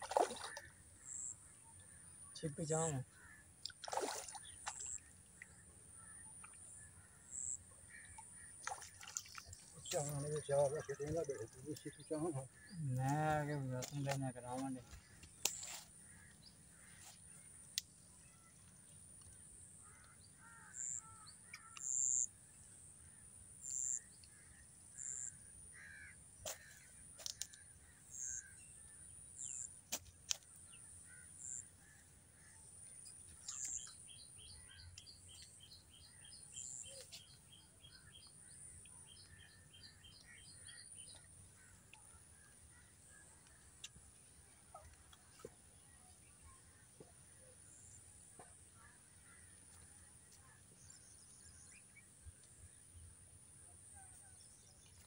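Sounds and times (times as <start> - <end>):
birds chirping: 0.0 - 22.3, 32.8 - 53.0.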